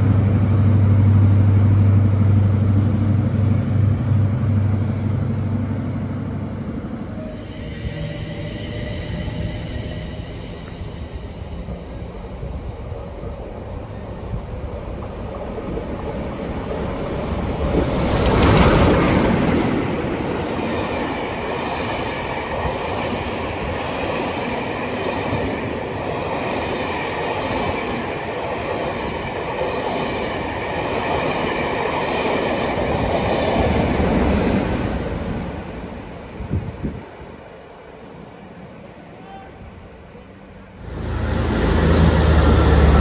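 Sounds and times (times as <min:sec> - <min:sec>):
train wheels rushing on rails: 0:02.0 - 0:37.1, 0:40.8 - 0:43.0
faint high ringing tone: 0:02.1 - 0:12.1.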